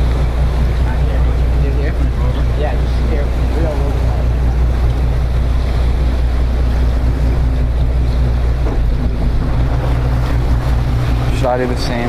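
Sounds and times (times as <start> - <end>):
boat engine droning: 0.0 - 12.0
water noise: 0.0 - 12.0
wind noise on microphone: 5.9 - 12.0.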